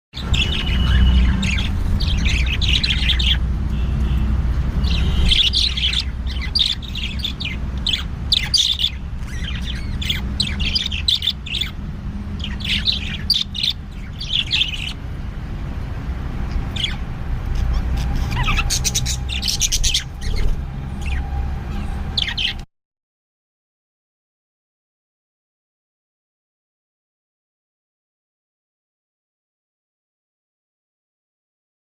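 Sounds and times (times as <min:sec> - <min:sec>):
budgerigars chirping and chattering: 0:00.2 - 0:15.1, 0:16.3 - 0:22.6.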